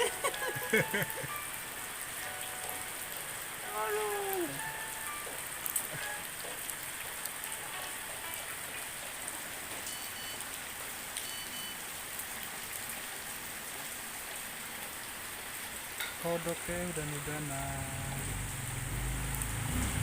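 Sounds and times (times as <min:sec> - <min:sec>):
light drizzling rain: 0:00.0 - 0:20.0.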